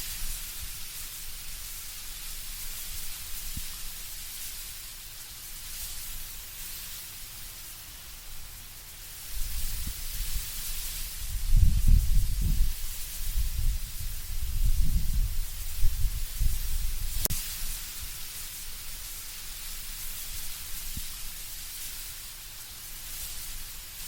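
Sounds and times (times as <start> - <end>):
leaves rustling in wind: 0.0 - 24.0
low rumble of gusting wind: 9.2 - 18.8.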